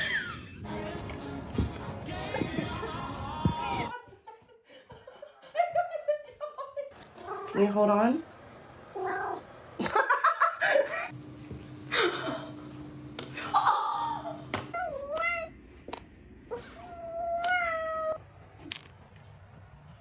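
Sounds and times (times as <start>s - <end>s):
cats meowing: 7.1s - 9.5s, 16.5s - 18.2s.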